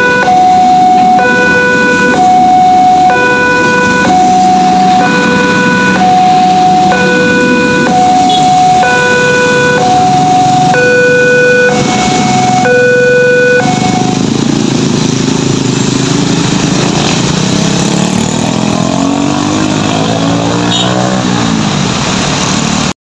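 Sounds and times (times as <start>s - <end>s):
level crossing alarm tones: 0.0s - 15.8s
engines revving: 0.0s - 22.9s
road traffic moving off: 0.0s - 23.0s.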